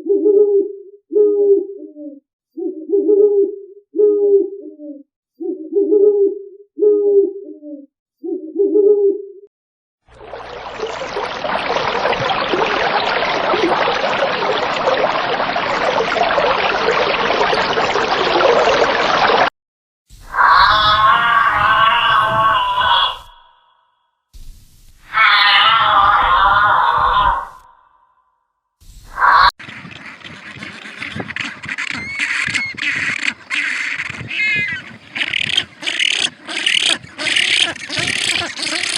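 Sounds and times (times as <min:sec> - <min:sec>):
rushing splashing water: 0:10.1 - 0:19.5, 0:29.6 - 0:38.9
bird warbling call: 0:29.3 - 0:38.9
birds calling harshly: 0:29.6 - 0:38.9.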